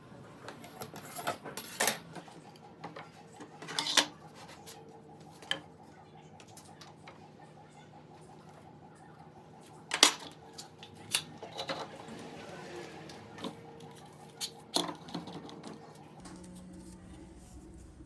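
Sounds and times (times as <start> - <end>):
tools knocking and clattering: 9.9 - 11.9.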